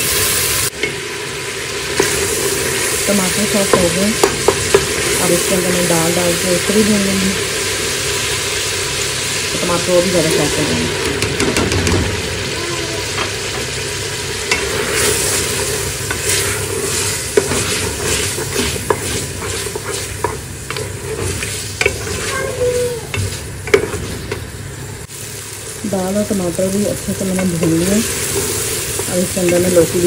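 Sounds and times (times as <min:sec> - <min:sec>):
food sizzling in hot oil: 0:00.0 - 0:30.0
spatula tapping pot: 0:03.7 - 0:04.9, 0:27.3 - 0:27.9, 0:29.0 - 0:30.0
spatula scraping pot bottom: 0:16.1 - 0:24.2.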